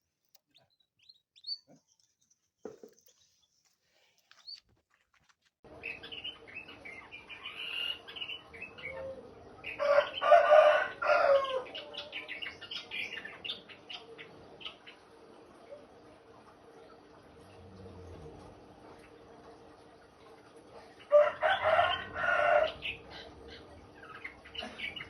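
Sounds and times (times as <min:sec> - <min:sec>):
songbird chirping and trilling: 0:00.3 - 0:04.6, 0:05.7 - 0:15.8, 0:21.0 - 0:25.0.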